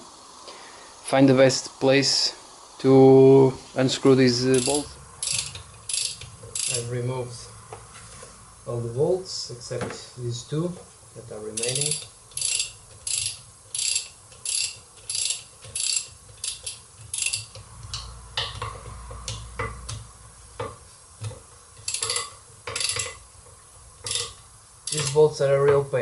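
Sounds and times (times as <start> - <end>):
ratchet wrench clicking: 4.4 - 6.9, 11.6 - 20.0, 21.8 - 23.2, 24.0 - 25.2.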